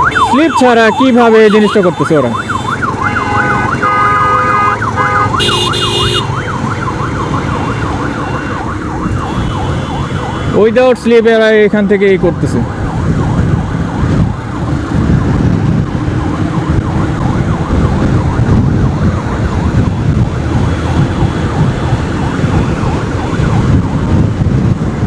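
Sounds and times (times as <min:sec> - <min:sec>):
siren warbling: 0:00.0 - 0:10.5
wind noise: 0:12.3 - 0:25.0.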